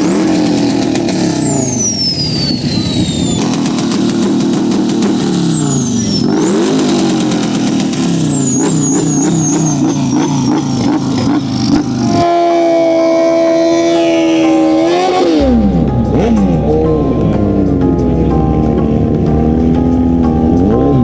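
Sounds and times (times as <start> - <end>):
high whistle: 0.0 - 11.0
motorcycle engine revving: 0.0 - 21.0.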